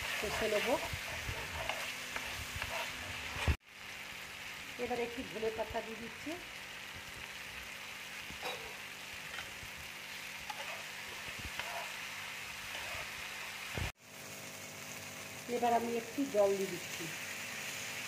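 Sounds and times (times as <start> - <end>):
metal spatula scraping: 0.0 - 3.6, 10.4 - 13.6
paste sizzling in oil: 0.0 - 18.0.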